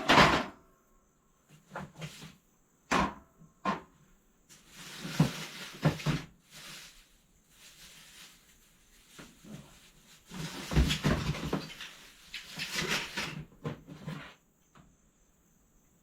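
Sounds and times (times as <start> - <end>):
rustling and scraping: 1.5 - 2.6, 3.7 - 14.5.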